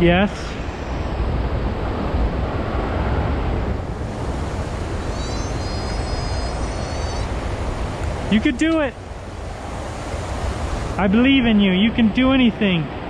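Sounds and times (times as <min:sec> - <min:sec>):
river water rushing: 0:00.0 - 0:11.6
wind rumble on microphone: 0:00.0 - 0:13.0
high thin call: 0:04.5 - 0:07.4.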